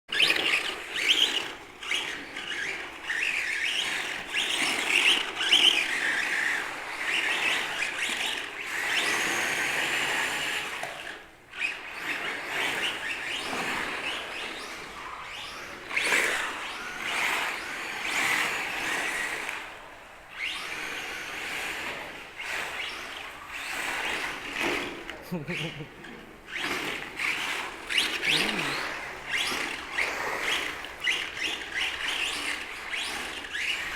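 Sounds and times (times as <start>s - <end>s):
electric motors whining: 0.1s - 33.9s
tyres squealing on concrete: 27.3s - 29.8s.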